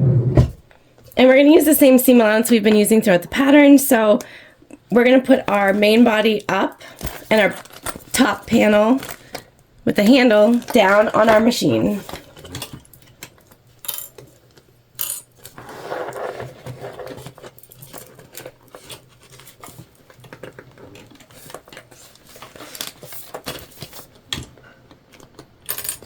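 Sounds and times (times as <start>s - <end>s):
vinyl crinkling rustle: 5.3s - 14.7s, 15.4s - 24.7s.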